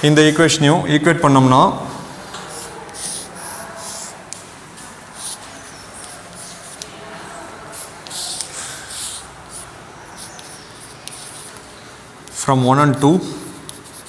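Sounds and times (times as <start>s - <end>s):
pen scratching on paper: 1.9s - 4.2s, 5.1s - 14.0s
pen tapping: 5.2s - 6.9s.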